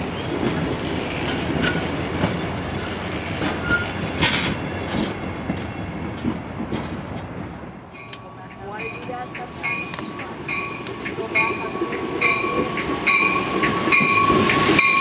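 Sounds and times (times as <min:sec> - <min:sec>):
high wheel squeals: 0:00.0 - 0:01.8, 0:03.5 - 0:04.0
train wheels clicking over rail joints: 0:00.4 - 0:15.0.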